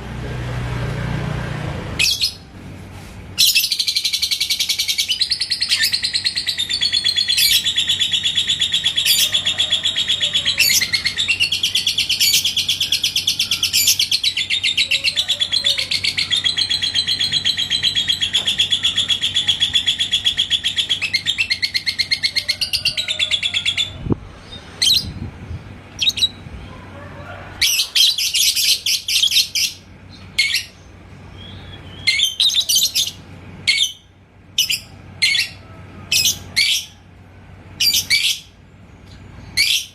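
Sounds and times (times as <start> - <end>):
bird chattering trill: 3.4 - 24.0, 25.9 - 26.4, 27.6 - 37.0, 37.8 - 38.6
bird chirps: 3.4 - 25.2, 25.9 - 26.4.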